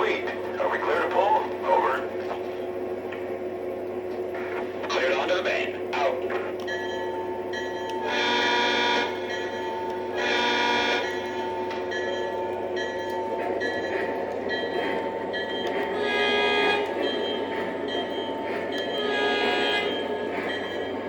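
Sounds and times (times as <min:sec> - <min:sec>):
engine rumble from speaker: 0:00.0 - 0:06.9
model train diesel horn: 0:08.0 - 0:09.3, 0:10.1 - 0:11.2, 0:15.9 - 0:17.0, 0:18.9 - 0:20.0.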